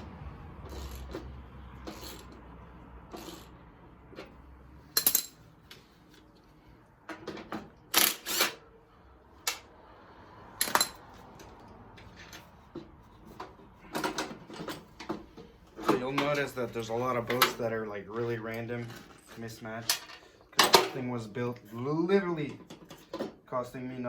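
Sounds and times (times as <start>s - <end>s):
metal parts clinking and clanking: 0.6s - 5.9s, 7.1s - 8.7s, 10.6s - 21.1s.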